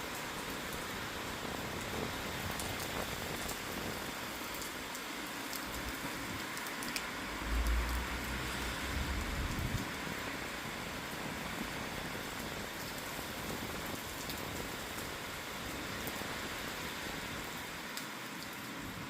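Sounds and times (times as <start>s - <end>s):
steady rain falling: 0.0s - 19.0s
raindrops ticking: 2.5s - 10.2s
deep low rumble: 7.3s - 10.0s.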